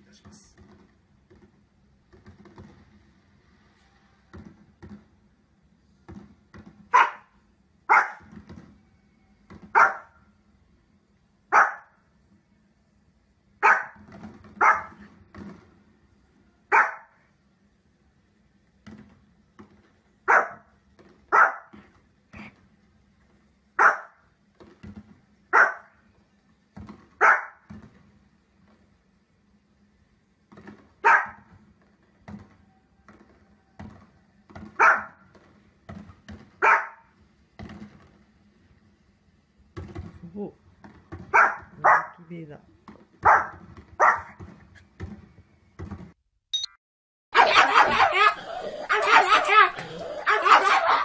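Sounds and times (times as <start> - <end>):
dog barking: 6.9 - 8.3, 9.7 - 10.2, 11.5 - 12.0, 13.6 - 14.0, 14.6 - 15.0, 16.7 - 17.2, 20.3 - 20.7, 21.3 - 21.8, 23.8 - 24.2, 25.5 - 25.9, 27.2 - 27.6, 31.0 - 31.5, 34.8 - 35.2, 36.6 - 37.1, 41.3 - 42.2, 43.2 - 44.4, 47.4 - 51.0.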